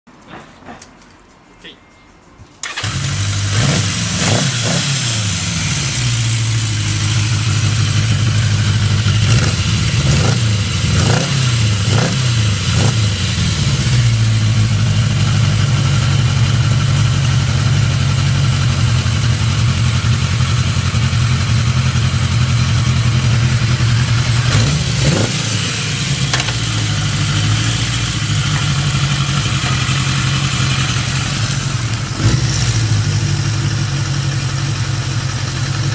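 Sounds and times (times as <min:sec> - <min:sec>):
motorcycle engine starting: 0:02.6 - 0:35.9
motorcycle engine idling: 0:05.0 - 0:35.9
motorcycle throttle blips: 0:20.7 - 0:35.3.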